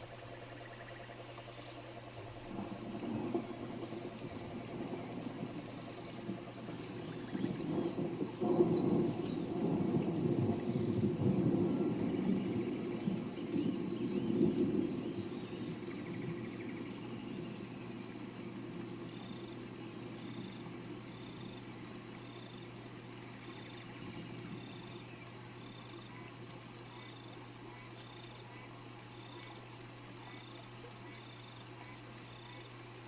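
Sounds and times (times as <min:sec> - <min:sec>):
rain hiss: 0:00.0 - 0:33.0
low rumble: 0:02.1 - 0:17.8.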